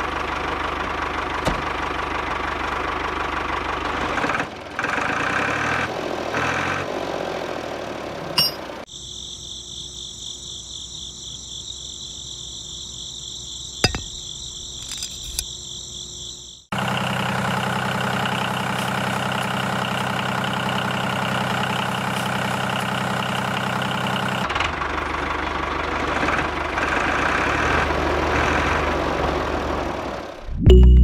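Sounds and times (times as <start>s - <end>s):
tractor engine running: 0.0s - 8.9s, 16.7s - 31.0s.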